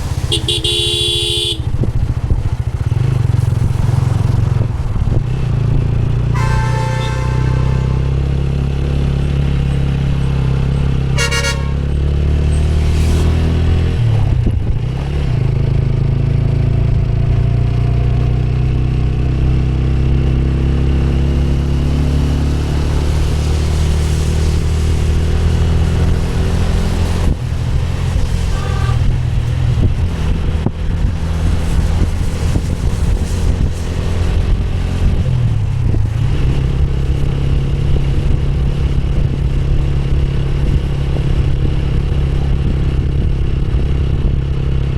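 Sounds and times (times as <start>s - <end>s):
motorcycle engine running: 0.0s - 7.7s
vehicle horn honk: 0.3s - 1.7s, 6.3s - 9.2s, 11.2s - 11.9s, 28.5s - 29.2s
faint brief beep: 6.4s - 8.8s.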